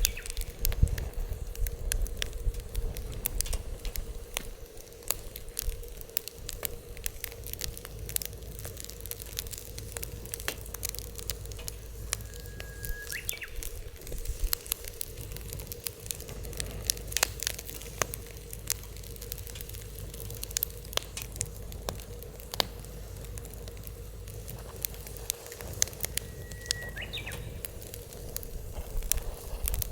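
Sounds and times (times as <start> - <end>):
wood fire crackling and popping: 0.0 - 29.9
low steady rumble: 5.4 - 29.9
brief high whistle: 12.0 - 13.6, 26.1 - 27.6.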